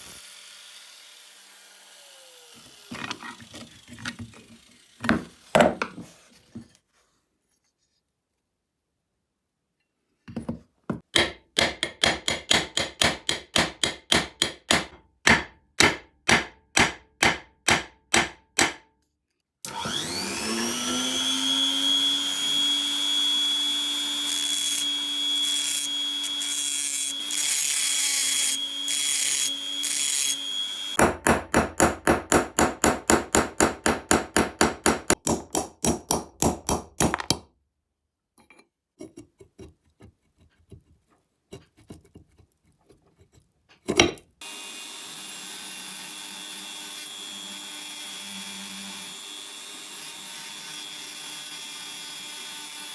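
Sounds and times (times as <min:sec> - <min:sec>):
electric drill running: 0:19.7 - 0:31.0, 0:44.4 - 0:52.9.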